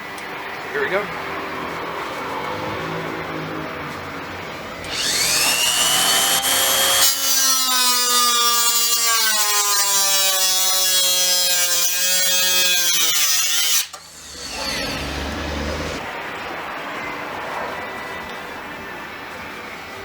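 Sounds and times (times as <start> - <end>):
power tool whining: 4.6 - 16.0
tool cutting sheet metal: 4.9 - 16.0.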